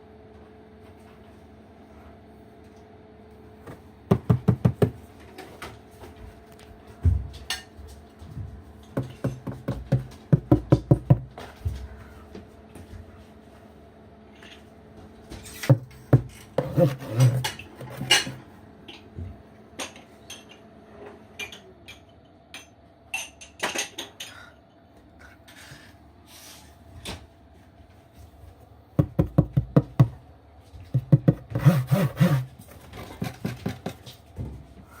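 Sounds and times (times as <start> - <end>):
rapid scraping strokes: 16.6 - 18.3, 31.5 - 32.5.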